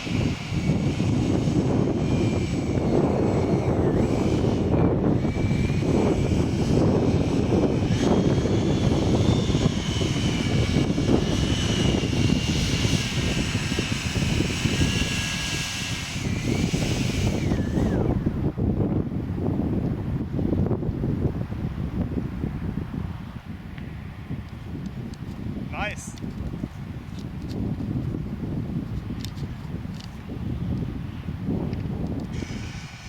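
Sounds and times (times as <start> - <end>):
model jet fan whine: 0.0 - 19.8, 28.3 - 33.0
wind rumble on microphone: 0.0 - 33.0.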